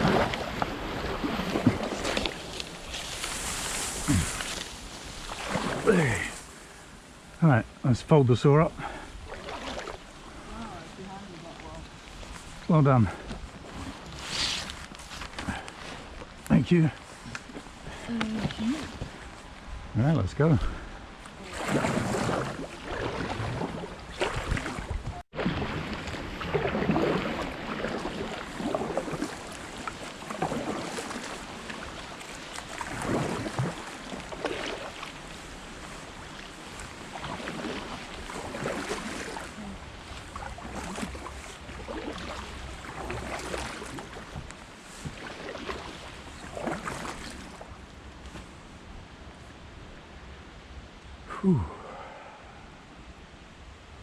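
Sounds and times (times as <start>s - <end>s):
paddle splashing through water: 0.0s - 6.9s, 8.8s - 19.3s, 21.3s - 48.6s
wind on microphone: 21.6s - 29.1s.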